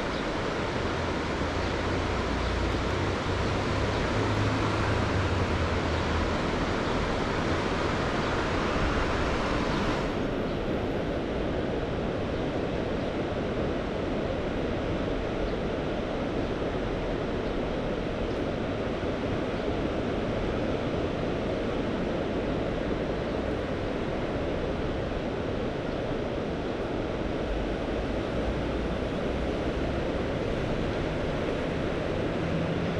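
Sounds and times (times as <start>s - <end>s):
sea waves washing: 0.0s - 11.4s
wind buffeting microphone: 0.0s - 32.9s.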